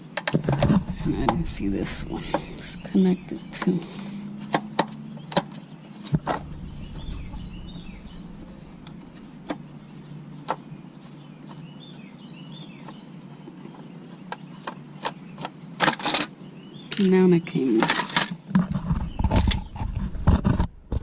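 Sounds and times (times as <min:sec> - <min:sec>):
steady low hum: 0:00.4 - 0:04.5, 0:06.1 - 0:11.4
birds chirping faintly: 0:00.4 - 0:15.7.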